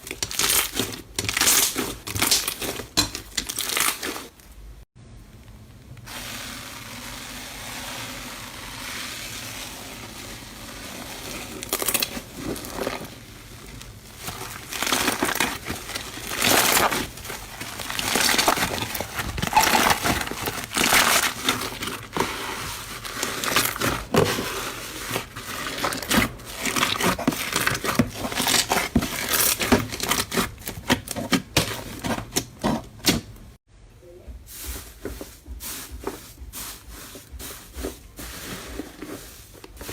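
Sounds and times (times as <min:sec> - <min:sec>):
slime crackling and popping: 0:00.0 - 0:04.3, 0:05.8 - 0:31.7.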